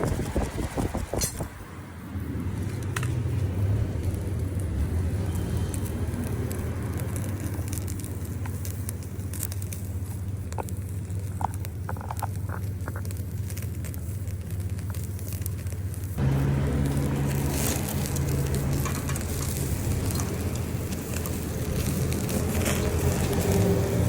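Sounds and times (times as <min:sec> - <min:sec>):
meat searing and crackling: 0:02.0 - 0:24.0.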